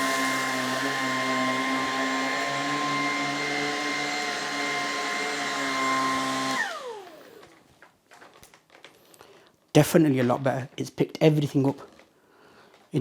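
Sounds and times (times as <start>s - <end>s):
stick vacuum running: 0.0s - 7.6s
vacuum motor spinning down: 0.0s - 7.6s.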